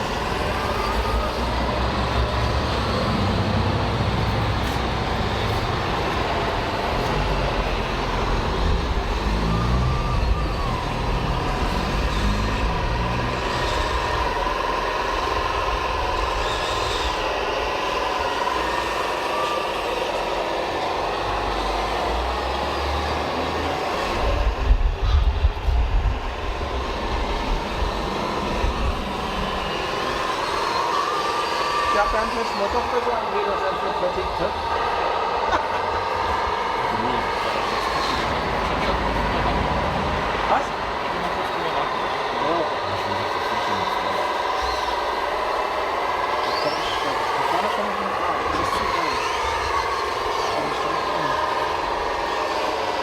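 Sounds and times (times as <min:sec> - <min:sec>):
model truck diesel engine noise: 0:00.0 - 0:16.8.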